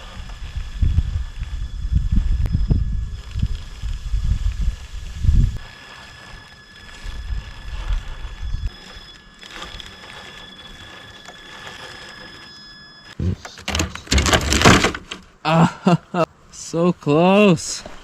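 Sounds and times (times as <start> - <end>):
electric motor whining: 0.0 - 14.2.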